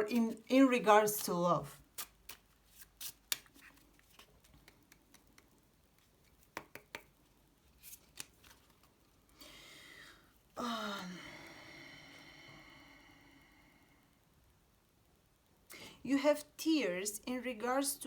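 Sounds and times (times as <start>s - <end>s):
playing cards snapping on table: 3.0s - 3.5s.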